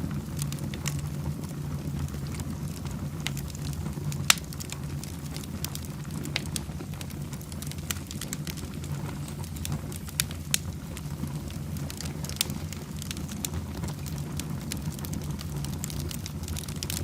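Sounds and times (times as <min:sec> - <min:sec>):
fire crackling and popping: 0:00.0 - 0:17.0
low rumble of fire: 0:00.0 - 0:17.0.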